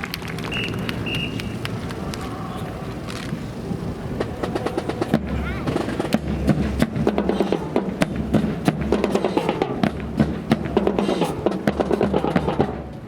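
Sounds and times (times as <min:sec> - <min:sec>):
drum music with steady beat: 0:04.2 - 0:12.9.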